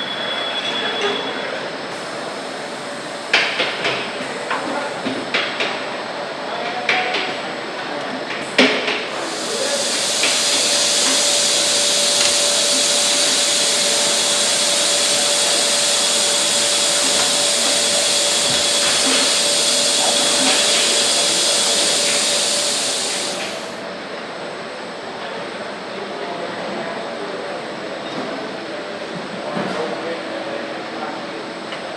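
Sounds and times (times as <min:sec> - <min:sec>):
rushing air hiss: 0:01.9 - 0:05.2, 0:09.1 - 0:23.8
machinery whine: 0:08.4 - 0:24.0.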